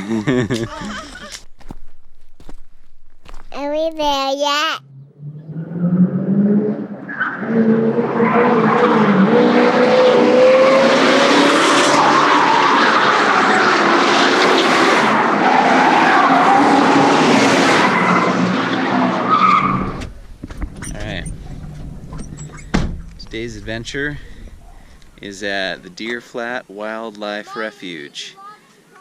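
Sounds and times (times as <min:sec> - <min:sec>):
tyres skidding and squealing: 0:04.8 - 0:26.0
car engine revving hard: 0:05.1 - 0:20.0.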